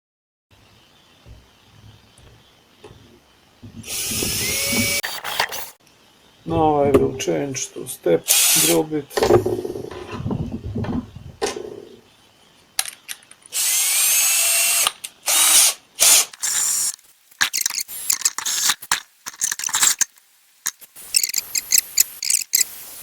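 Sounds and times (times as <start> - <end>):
power drill cutting plastic: 3.8 - 5.8, 13.5 - 20.1, 21.0 - 22.6
rattling and clicking: 17.4 - 22.7.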